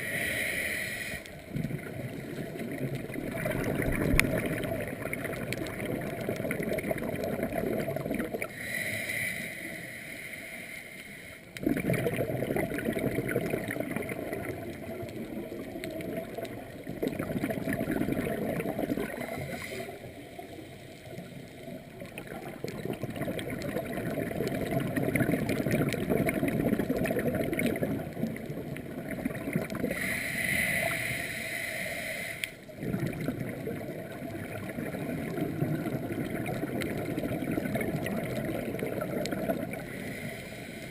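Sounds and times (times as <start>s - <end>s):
inhale hissing through regulator: 0.0s - 1.4s, 8.4s - 11.5s, 19.2s - 20.2s, 29.8s - 32.7s, 39.8s - 40.9s
exhaled bubbles gurgling: 0.0s - 8.7s, 11.5s - 31.5s, 32.6s - 40.9s.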